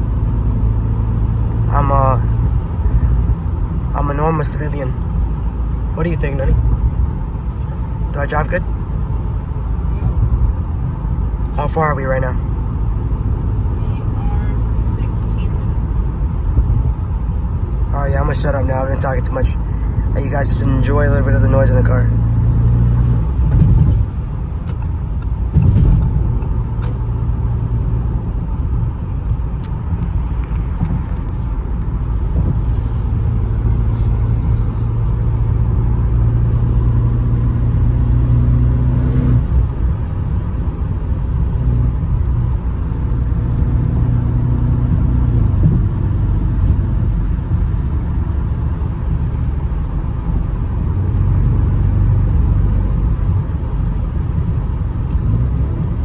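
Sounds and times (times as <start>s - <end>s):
car engine drone from cabin: 0.0s - 56.0s
road noise: 0.0s - 56.0s
thump: 25.5s - 26.2s.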